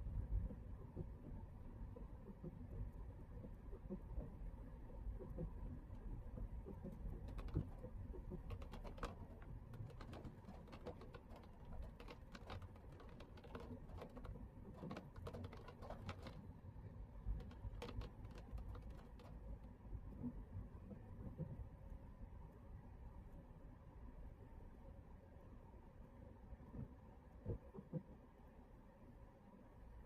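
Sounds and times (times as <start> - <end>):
raindrops ticking on windshield: 2.2 - 16.4, 17.3 - 19.6.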